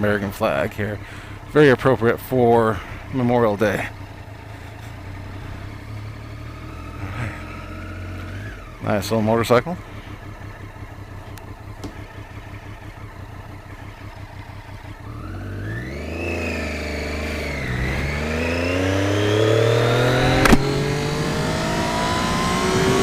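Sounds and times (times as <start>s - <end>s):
motorcycle engine revving: 0.0s - 23.0s
sharp click: 20.3s - 20.8s.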